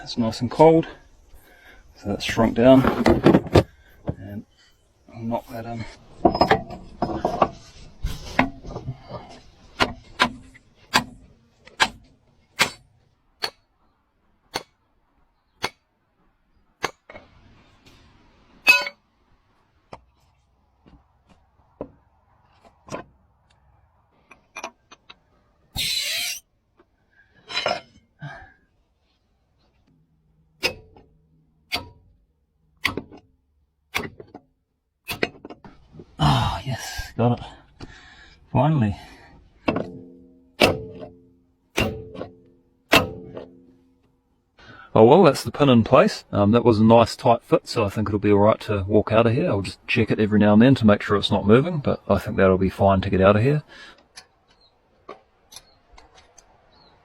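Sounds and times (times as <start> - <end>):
hammer striking steel pin: 39.7 - 43.7.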